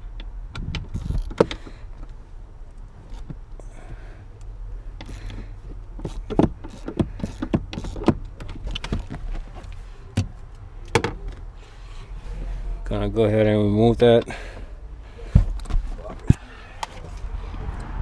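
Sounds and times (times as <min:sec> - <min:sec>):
tool clicks and knocks: 0:06.0 - 0:09.2.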